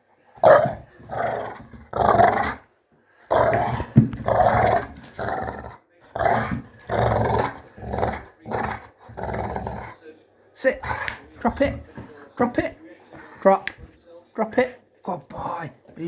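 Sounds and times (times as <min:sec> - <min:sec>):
dog growling: 0:00.4 - 0:02.7, 0:03.3 - 0:10.0, 0:10.8 - 0:12.0.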